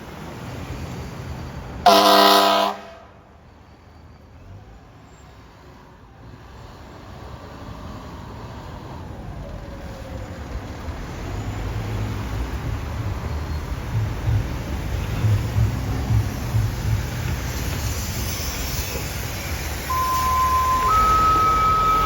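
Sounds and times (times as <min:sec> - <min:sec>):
engine and road noise: 0:00.0 - 0:22.0
fire engine air horn blast: 0:01.8 - 0:03.3, 0:19.9 - 0:22.0.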